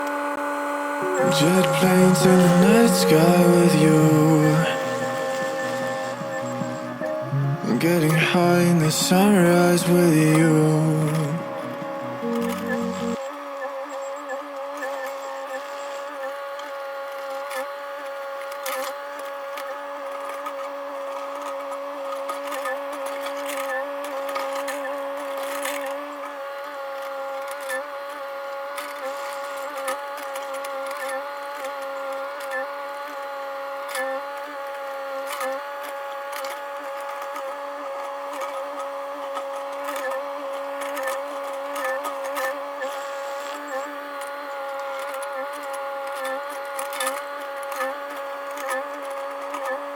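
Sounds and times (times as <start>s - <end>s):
excavator engine whine: 0.0s - 13.2s.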